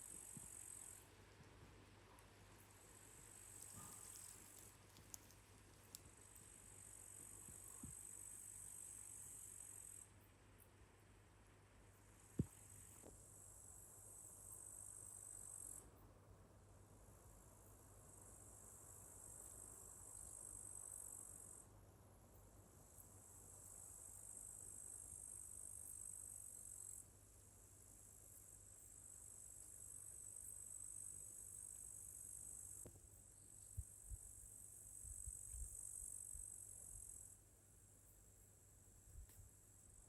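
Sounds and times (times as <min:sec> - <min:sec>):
crickets trilling: 0:02.6 - 0:10.0.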